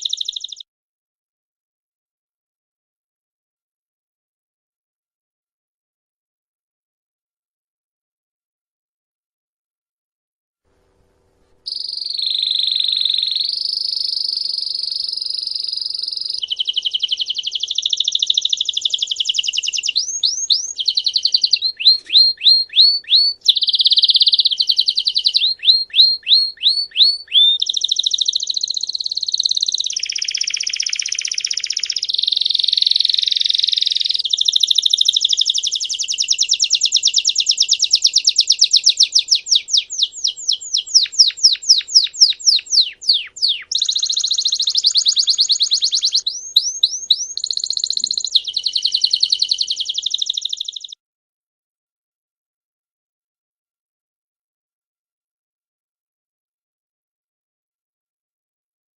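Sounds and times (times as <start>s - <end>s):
canary singing: 0.0s - 0.6s, 11.6s - 51.0s.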